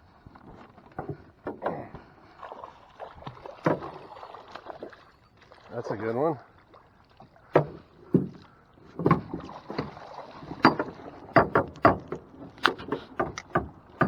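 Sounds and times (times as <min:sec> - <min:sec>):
fish knocking against boat hull: 0:07.6 - 0:08.4, 0:10.5 - 0:14.0.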